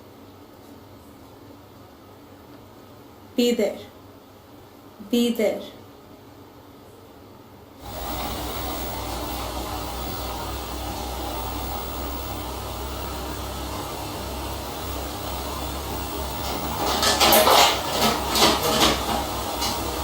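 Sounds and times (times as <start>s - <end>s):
motor droning: 7.8s - 20.0s
loud sharp clattering: 16.5s - 19.8s.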